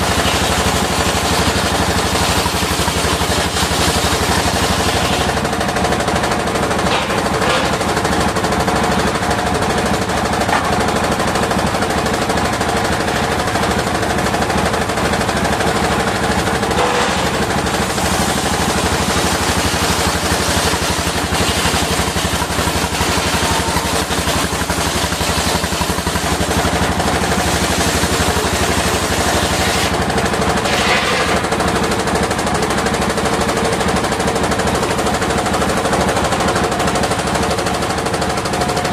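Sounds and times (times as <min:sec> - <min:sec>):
engine beating: 0:00.0 - 0:30.6
circular saw blade sawing wood: 0:15.9 - 0:31.5.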